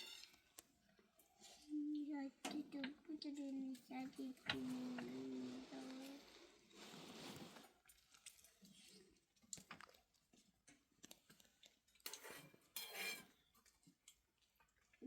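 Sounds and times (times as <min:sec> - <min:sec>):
faint rustling: 0:01.4 - 0:07.8.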